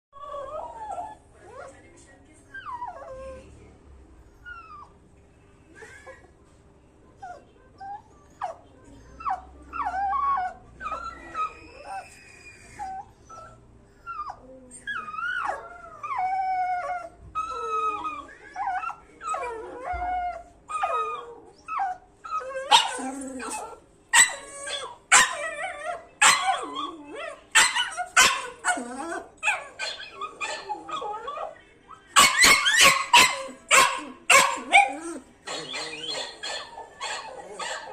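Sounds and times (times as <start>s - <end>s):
dog whining and howling: 0.2s - 1.2s, 9.7s - 31.6s, 32.3s - 37.9s
dog barking: 27.6s - 28.5s, 32.2s - 37.9s.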